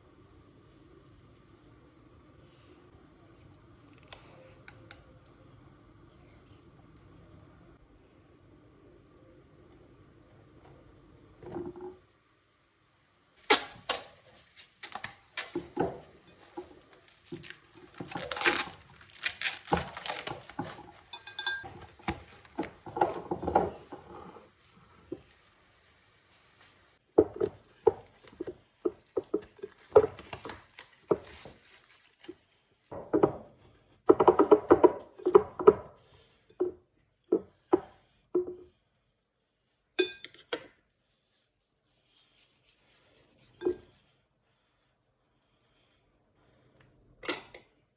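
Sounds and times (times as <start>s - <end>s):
dishes and utensils clattering: 19.6s - 24.5s.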